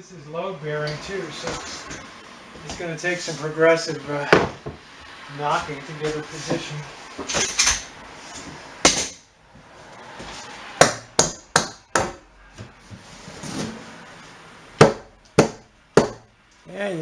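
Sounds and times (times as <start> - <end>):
hammer knocking on wood: 10.8 - 12.2, 14.8 - 16.3.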